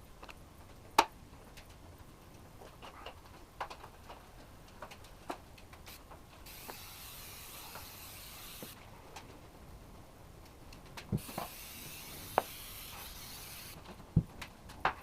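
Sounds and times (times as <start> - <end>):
steady hiss: 0.0 - 15.0
hand tools clicking and scraping: 5.7 - 8.8, 11.2 - 14.0.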